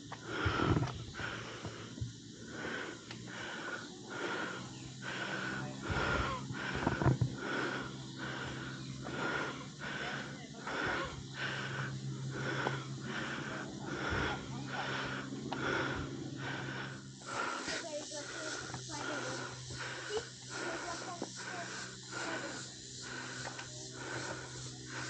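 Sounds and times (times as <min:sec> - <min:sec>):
person breathing hard: 0:00.0 - 0:25.0.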